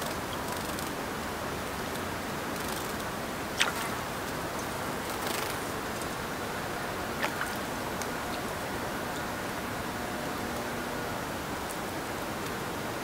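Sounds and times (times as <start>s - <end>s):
steady outdoor hiss: 0.0s - 13.0s
small birds clicking: 2.6s - 6.1s
bird wings fluttering: 5.0s - 5.7s.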